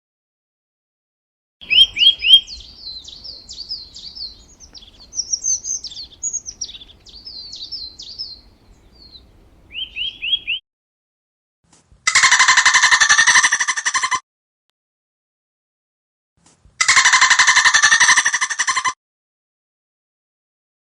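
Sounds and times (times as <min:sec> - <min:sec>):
songbird singing: 0:01.6 - 0:10.6.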